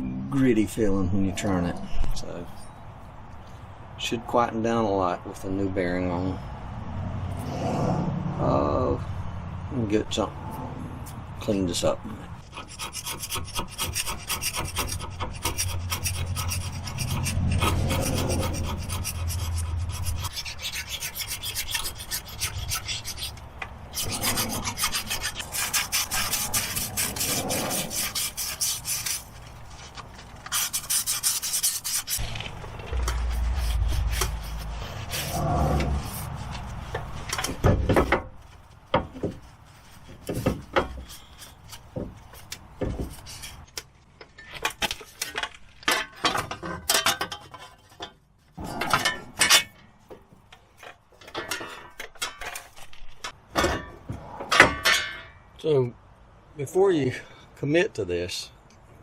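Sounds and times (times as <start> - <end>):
sanding screen scrubbing metal: 12.4 - 37.3.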